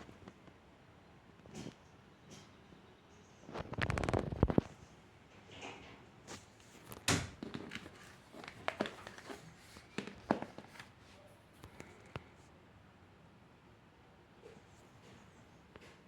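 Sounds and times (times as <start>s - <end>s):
packaging rustling: 6.8s - 11.2s.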